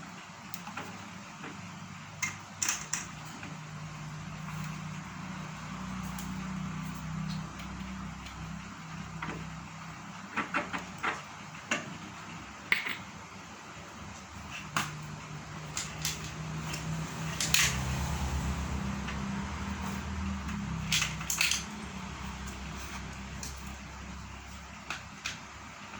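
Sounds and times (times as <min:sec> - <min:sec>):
metal parts clicking and knocking: 0:15.6 - 0:17.9, 0:20.4 - 0:22.7.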